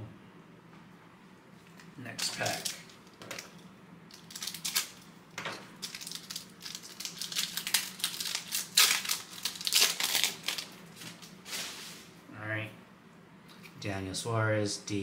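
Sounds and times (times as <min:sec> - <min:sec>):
wrapper tearing and crinkling: 0:02.2 - 0:03.0, 0:04.1 - 0:05.1, 0:05.8 - 0:11.4.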